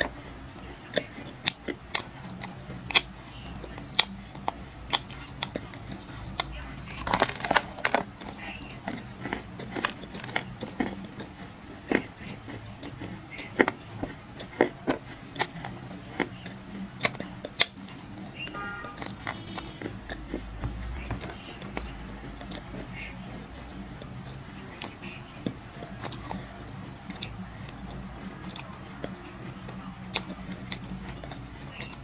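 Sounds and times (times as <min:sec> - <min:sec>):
dry clay crunching and cracking: 0:00.0 - 0:23.1.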